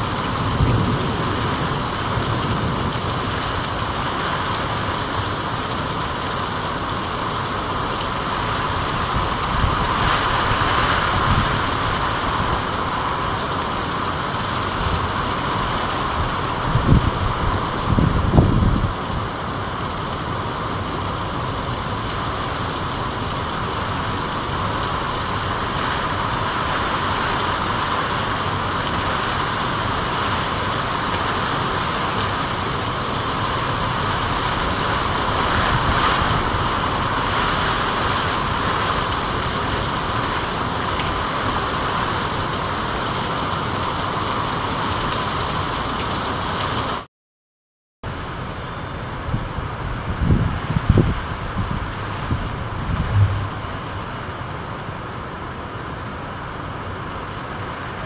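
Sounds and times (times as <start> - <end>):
steady rainfall: 0.0 - 47.1, 48.0 - 58.0
low rumble: 51.6 - 54.5.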